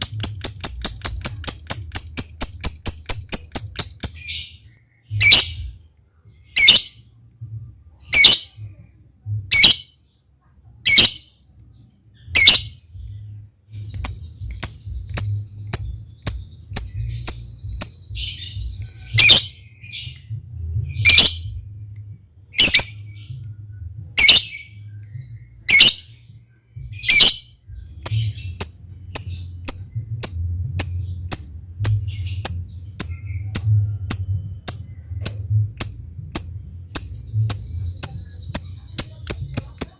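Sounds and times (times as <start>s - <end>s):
low hum: 0.0s - 9.6s, 11.4s - 39.9s
lovebird shrill calls: 5.2s - 5.6s, 22.6s - 23.0s, 27.0s - 27.4s.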